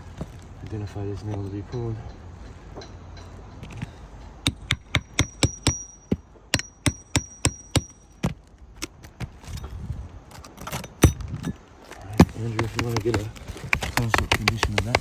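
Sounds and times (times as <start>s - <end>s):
hammer striking metal nail puller: 4.5s - 8.3s.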